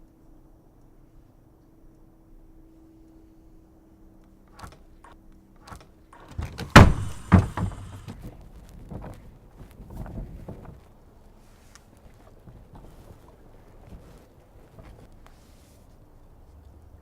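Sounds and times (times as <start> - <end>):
low steady hum: 0.0 - 17.0
door clicks: 4.5 - 8.2
small knocks: 5.7 - 10.9
door thuds: 6.2 - 8.2.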